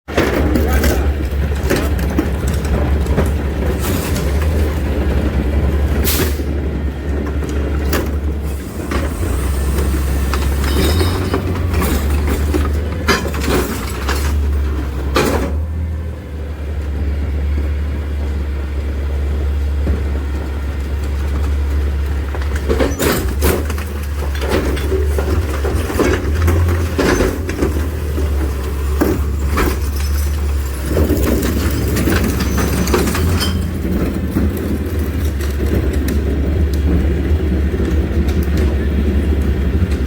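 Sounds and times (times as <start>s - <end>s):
diesel engine low rumble: 0.1s - 40.0s
truck sharp clanks or hisses: 6.0s - 6.6s, 8.4s - 12.6s.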